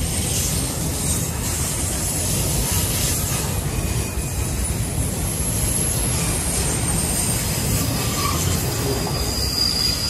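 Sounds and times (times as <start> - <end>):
steel wheels rumbling on rail: 0.0 - 10.0
high-pitched wheel squeals: 3.8 - 10.0.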